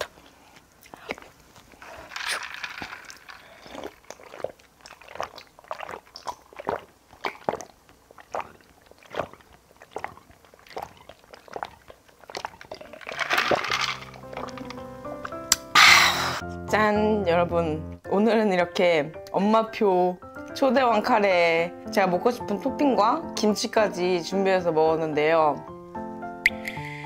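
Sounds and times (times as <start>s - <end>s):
close chewing with wet clicks: 3.5s - 13.1s.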